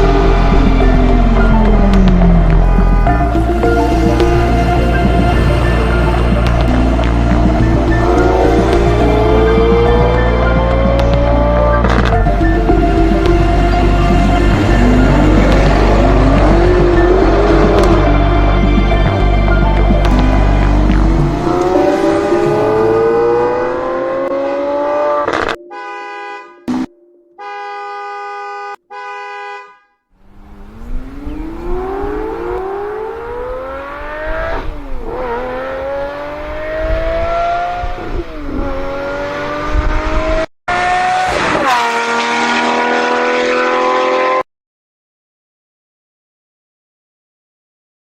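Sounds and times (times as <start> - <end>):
sports car engine accelerating: 0.0 - 25.6, 30.2 - 44.4
car horn blasts: 0.1 - 6.8, 25.4 - 30.0.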